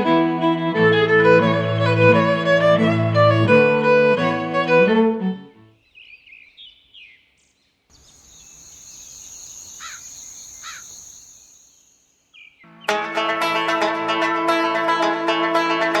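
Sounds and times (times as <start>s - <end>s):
falling bird calls: 5.8s - 12.7s
bird chirps: 5.8s - 12.8s
high insect buzz: 7.9s - 12.3s.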